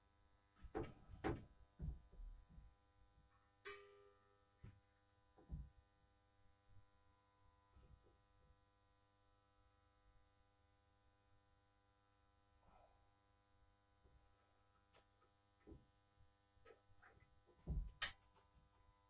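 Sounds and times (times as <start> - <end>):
dull thumps and knocks: 0.7 - 2.3, 17.6 - 18.0.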